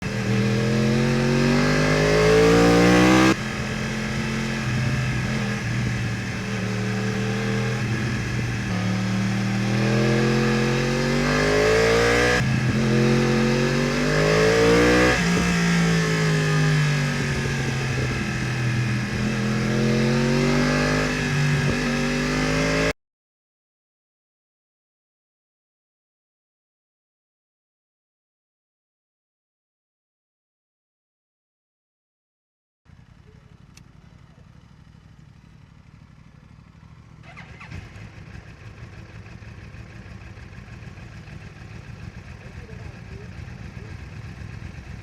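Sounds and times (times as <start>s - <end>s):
motorcycle engine revving: 0.0s - 23.0s, 32.9s - 45.0s.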